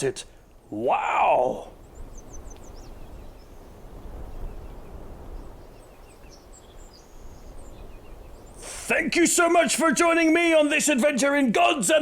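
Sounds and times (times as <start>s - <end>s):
bird chirps: 1.7s - 8.9s.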